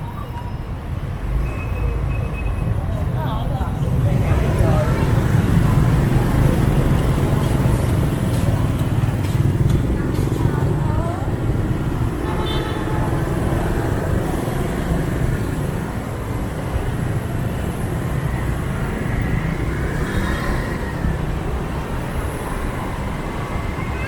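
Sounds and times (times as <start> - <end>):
passing motorbikes and cars: 0.0 - 24.0
motorbike engine rumble: 3.8 - 19.0.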